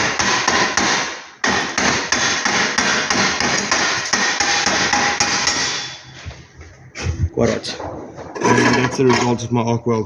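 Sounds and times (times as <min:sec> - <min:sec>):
chipping hammer striking metal: 0:00.0 - 0:06.0.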